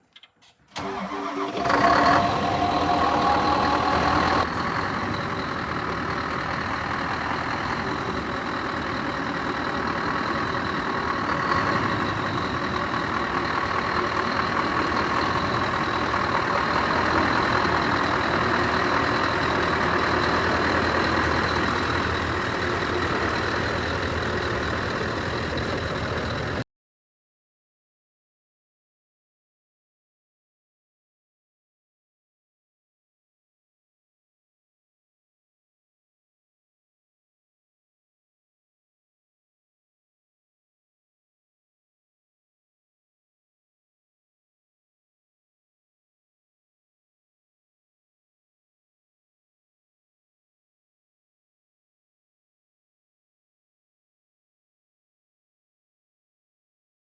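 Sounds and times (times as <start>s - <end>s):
diesel truck engine starting and idling: 0.7s - 26.6s.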